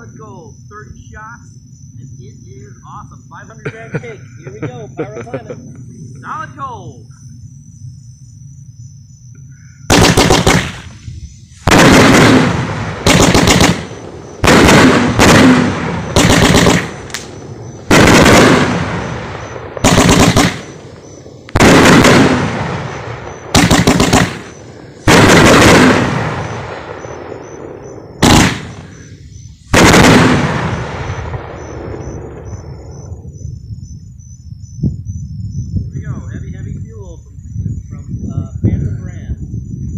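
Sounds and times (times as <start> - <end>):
crickets chirping: 0.0 - 39.9
firework bangs with rumble: 9.9 - 11.0, 11.6 - 33.5.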